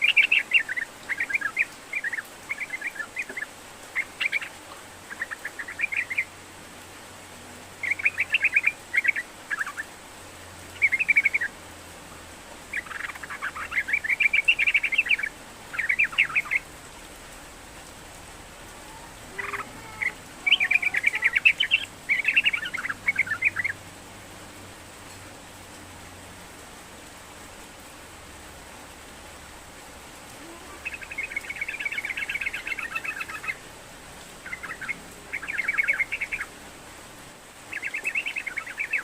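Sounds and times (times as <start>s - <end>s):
bird chattering song: 0.0s - 6.3s, 7.8s - 9.9s, 10.8s - 11.5s, 12.7s - 16.7s, 19.3s - 23.8s, 30.5s - 33.6s, 34.4s - 36.5s, 37.7s - 39.0s
steady background hiss: 0.0s - 39.0s.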